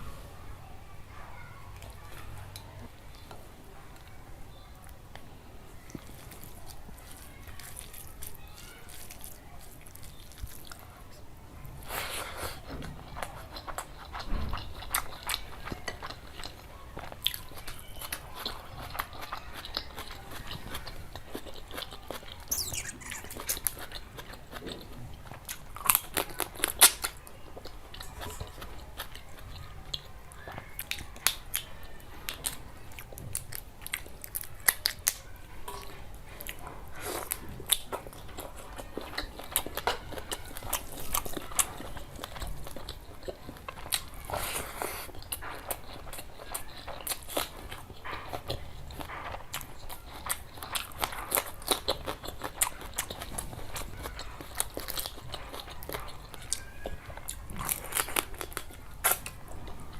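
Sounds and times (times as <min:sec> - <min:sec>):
food crunches: 0:05.9 - 0:10.9, 0:11.9 - 0:31.7, 0:32.3 - 0:59.9
person chewing food: 0:05.9 - 0:10.9, 0:11.8 - 0:59.9
wet mouth clicks: 0:22.4 - 0:23.8.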